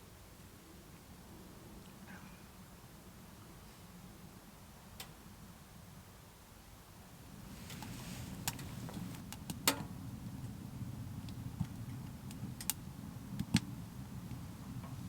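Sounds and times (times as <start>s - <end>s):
wood fire rumbling: 7.2s - 15.0s
fire crackling: 7.3s - 15.0s.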